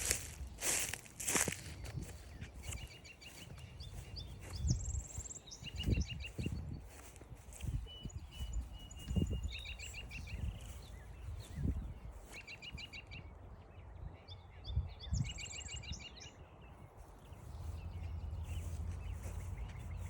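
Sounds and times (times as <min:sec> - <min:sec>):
low wind rumble: 0:00.0 - 0:12.2
soft footsteps: 0:00.0 - 0:12.5, 0:17.0 - 0:20.0
songbird singing: 0:00.0 - 0:20.0.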